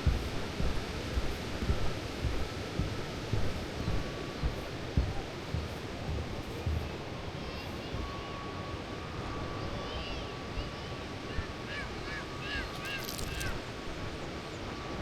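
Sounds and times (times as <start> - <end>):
soft thumps: 0.0 - 7.0.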